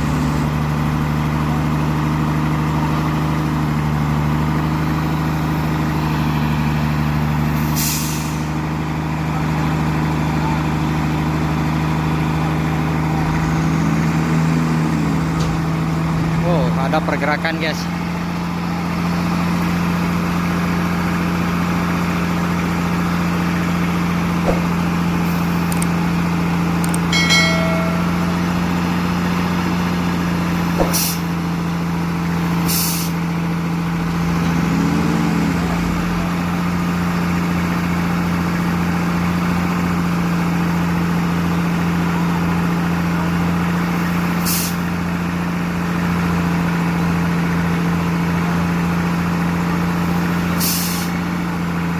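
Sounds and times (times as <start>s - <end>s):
diesel engine droning: 0.0s - 51.9s.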